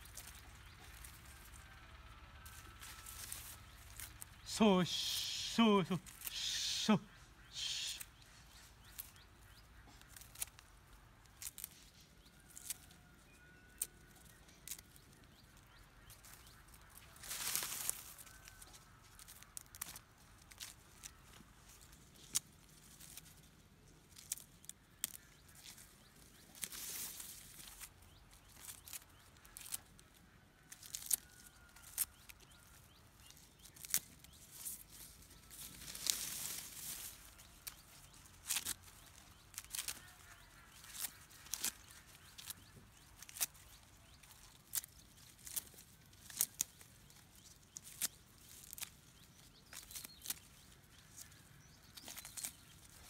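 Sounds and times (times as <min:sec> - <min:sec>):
rustling: 0:00.0 - 0:04.5, 0:08.0 - 0:13.0, 0:13.8 - 0:53.0
faint chirps: 0:00.0 - 0:10.6.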